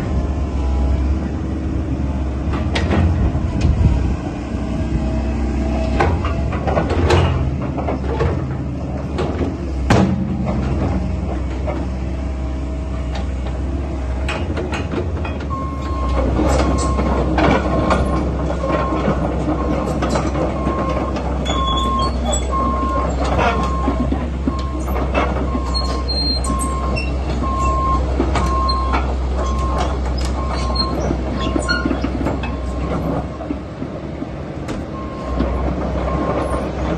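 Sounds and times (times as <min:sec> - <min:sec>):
excavator diesel engine: 0:00.0 - 0:36.9
metallic clanks and knocks: 0:05.9 - 0:36.9.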